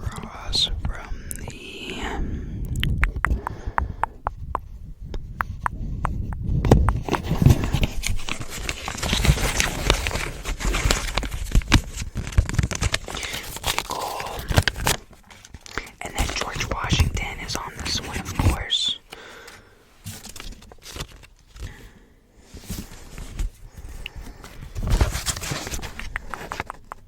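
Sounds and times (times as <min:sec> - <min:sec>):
sharp clicks: 0:02.7 - 0:07.2
paper money crinkling: 0:07.0 - 0:18.7, 0:24.8 - 0:27.0.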